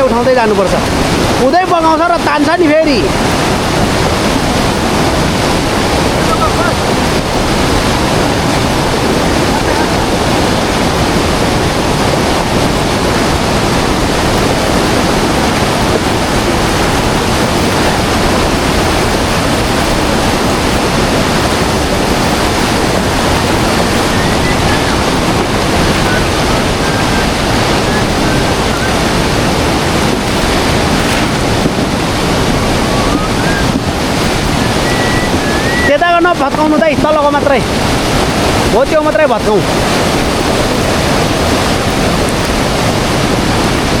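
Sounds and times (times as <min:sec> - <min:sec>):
river rushing: 0:00.0 - 0:44.0.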